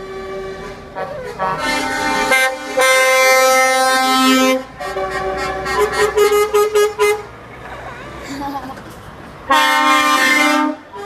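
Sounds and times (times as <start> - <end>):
lorry horn blast: 0.0 - 7.3, 9.5 - 11.0.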